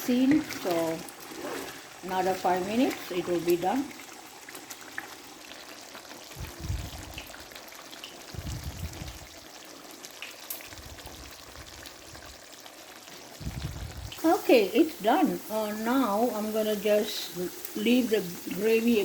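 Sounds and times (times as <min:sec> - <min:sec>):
curry sizzling and bubbling in a pan: 0:00.0 - 0:19.0
low rumbles: 0:13.4 - 0:14.2.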